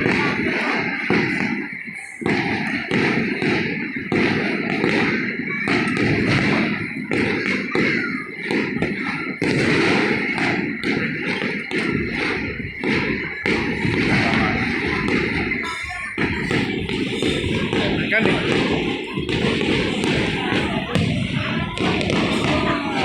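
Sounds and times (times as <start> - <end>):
fireworks booming: 0.0 - 23.0.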